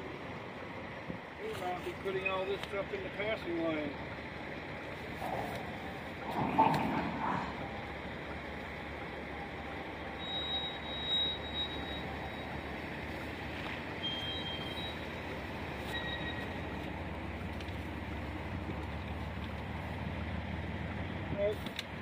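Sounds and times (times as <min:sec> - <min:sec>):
train wheels rumbling on rails: 0:00.9 - 0:22.0
high wheel squeals: 0:09.2 - 0:18.0.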